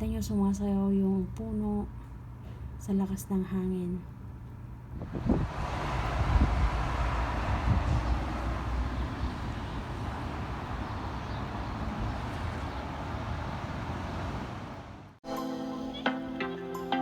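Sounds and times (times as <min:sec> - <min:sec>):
strong wind buffeting microphone: 0:04.9 - 0:14.6.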